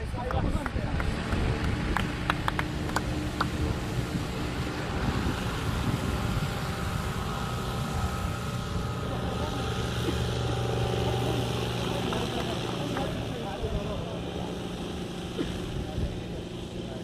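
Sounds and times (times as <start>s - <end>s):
wind noise on microphone: 0.0s - 9.1s
engine drone: 0.0s - 17.0s.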